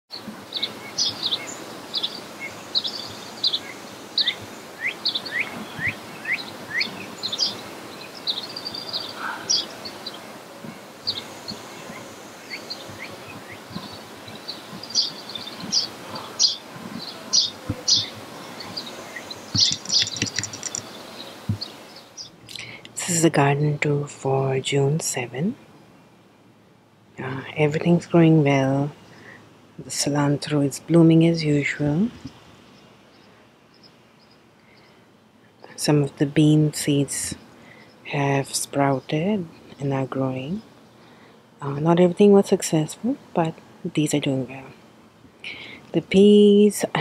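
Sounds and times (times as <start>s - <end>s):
songbirds chirping and singing: 0.1s - 22.9s, 31.0s - 43.3s
faint background noise: 0.1s - 47.0s.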